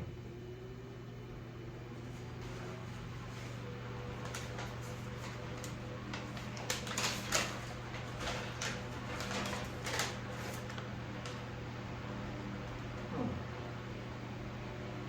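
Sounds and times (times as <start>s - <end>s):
electric fan motor hum: 0.0s - 15.0s
irregular clicks and rustles: 3.3s - 11.4s.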